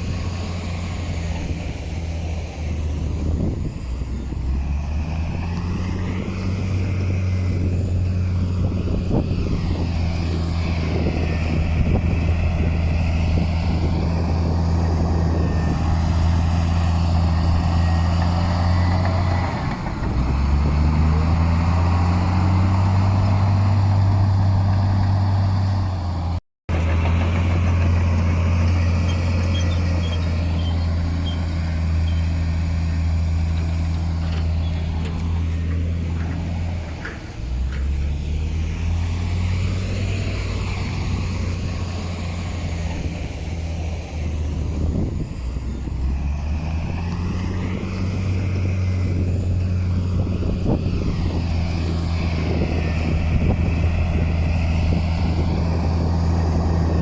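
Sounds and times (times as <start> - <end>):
diesel earthmoving machinery running: 0.0 - 57.0.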